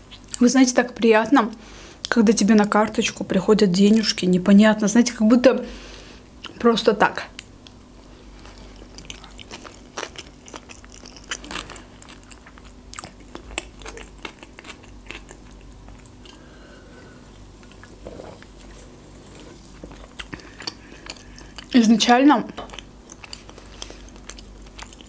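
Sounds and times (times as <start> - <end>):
chewing with wet mouth sounds: 7.4 - 25.0.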